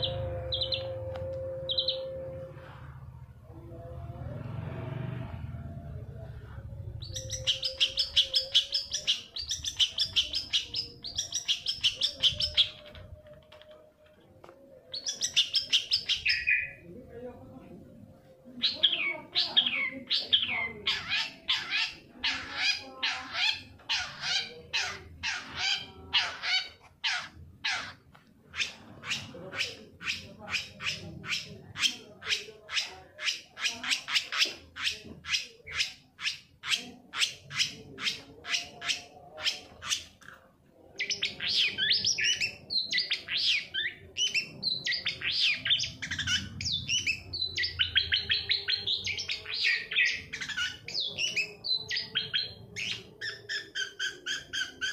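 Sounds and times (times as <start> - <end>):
shrike chattering song: 6.8 - 13.0, 14.9 - 16.8, 40.9 - 54.9.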